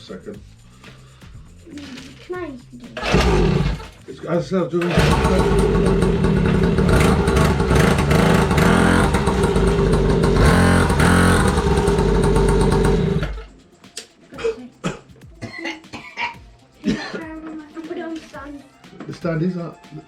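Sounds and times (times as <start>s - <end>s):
small petrol engine revving: 3.0s - 4.0s, 4.8s - 13.5s.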